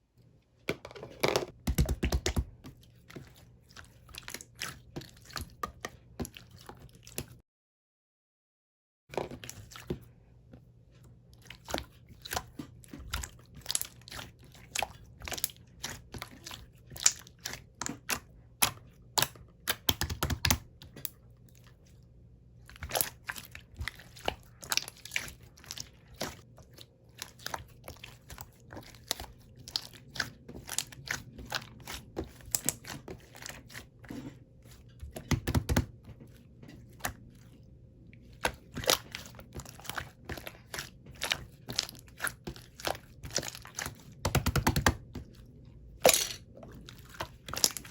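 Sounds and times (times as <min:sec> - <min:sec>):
slime squelching: 0:01.5 - 0:07.4, 0:09.1 - 0:47.9.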